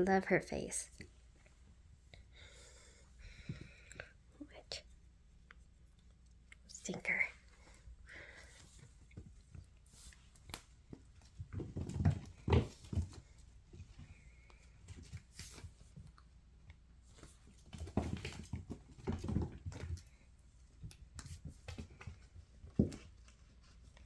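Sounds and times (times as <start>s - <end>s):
kittens thumping and scuffling: 2.7s - 4.2s, 7.4s - 24.0s.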